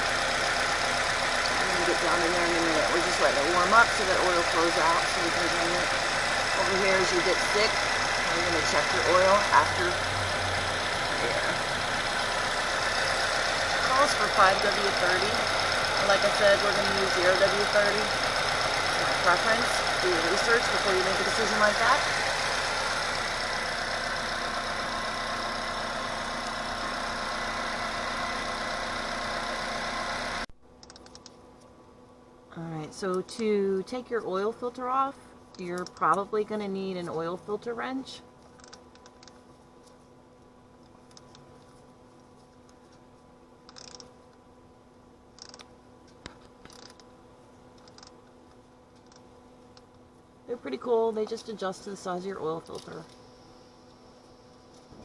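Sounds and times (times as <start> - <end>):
car engine idling: 0.0 - 30.5
faint steady hum: 0.0 - 55.0.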